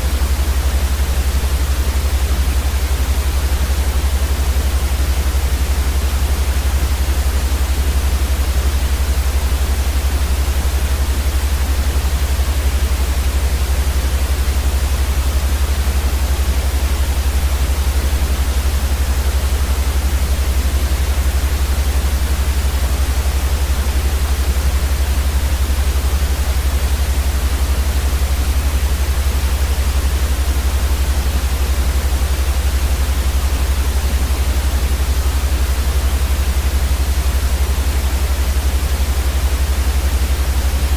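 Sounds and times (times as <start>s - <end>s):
white noise with low rumble: 0.0s - 40.9s.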